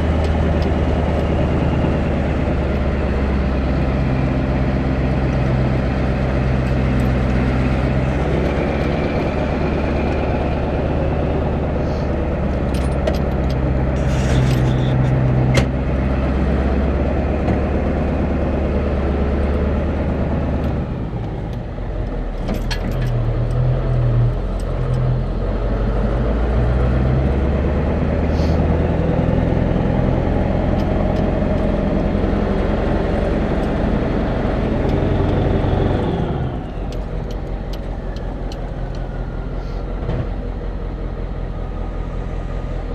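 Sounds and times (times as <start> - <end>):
vehicle engine and road noise: 0.0 - 42.9
light rattles and clicks: 36.7 - 39.2.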